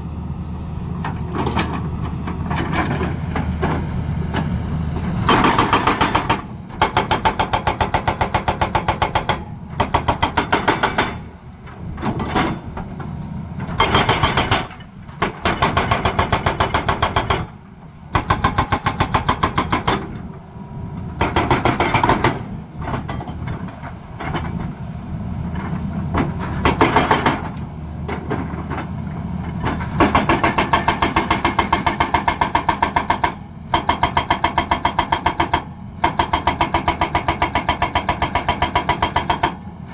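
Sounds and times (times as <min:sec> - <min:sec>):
diesel engine running: 0:00.0 - 0:08.6
hydraulic breaker hammering: 0:05.3 - 0:11.3, 0:13.8 - 0:17.5, 0:18.1 - 0:20.1, 0:21.2 - 0:23.3, 0:26.5 - 0:27.6, 0:30.0 - 0:39.6.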